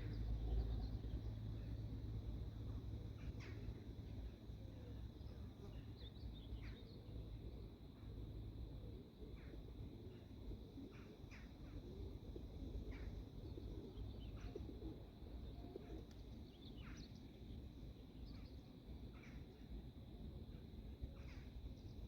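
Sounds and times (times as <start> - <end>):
faint birdsong chirps: 0.0 - 22.0.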